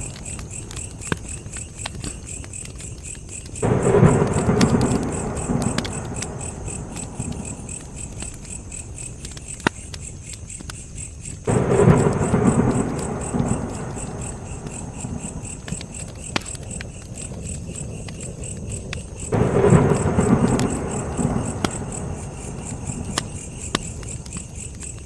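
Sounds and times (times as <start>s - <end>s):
campfire crackling and popping: 0.0s - 25.0s
crickets chirping: 0.0s - 25.0s
thunder rolling: 3.6s - 9.3s, 11.5s - 24.8s.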